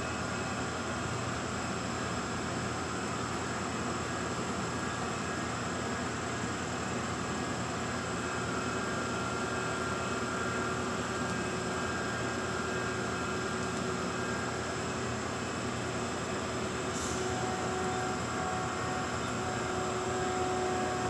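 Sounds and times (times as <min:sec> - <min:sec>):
faint steady machine tones: 0:00.0 - 0:21.0
machine steady mechanical whir: 0:00.0 - 0:21.0.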